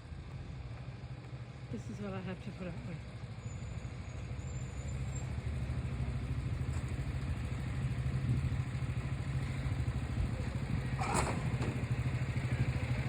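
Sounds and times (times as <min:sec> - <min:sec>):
truck engine idling: 0:00.0 - 0:13.0
brief clatter: 0:10.9 - 0:12.1.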